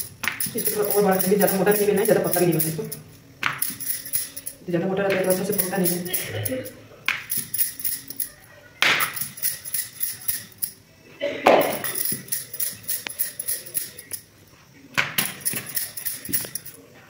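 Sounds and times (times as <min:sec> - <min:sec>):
bangles clinking: 0:00.0 - 0:11.0, 0:11.6 - 0:14.4, 0:15.0 - 0:16.9
rolling pin on stone counter: 0:03.4 - 0:04.4, 0:05.0 - 0:06.3
dough slapped down: 0:15.0 - 0:15.2.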